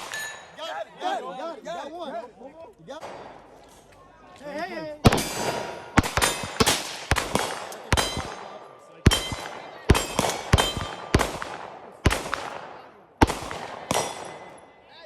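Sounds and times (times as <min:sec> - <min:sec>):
gunshots with echo: 0:00.0 - 0:00.5, 0:03.0 - 0:03.6, 0:05.0 - 0:14.8.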